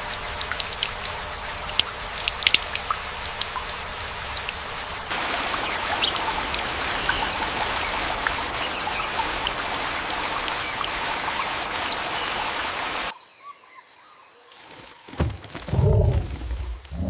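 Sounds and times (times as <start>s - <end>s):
raindrop hits: 0.0s - 13.1s
steady rain hiss: 0.0s - 13.1s.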